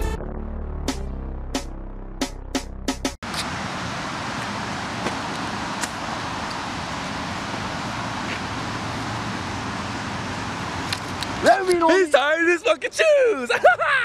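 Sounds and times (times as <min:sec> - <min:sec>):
moving car road and engine noise: 0:03.2 - 0:12.7.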